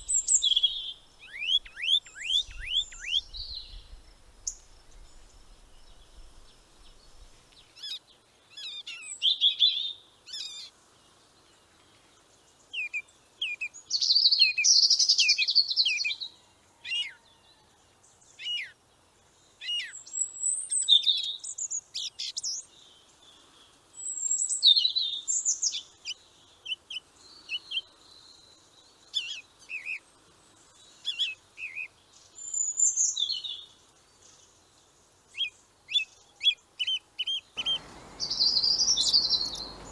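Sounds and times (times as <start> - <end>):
small birds chirping: 0.0 - 9.2, 30.6 - 39.9.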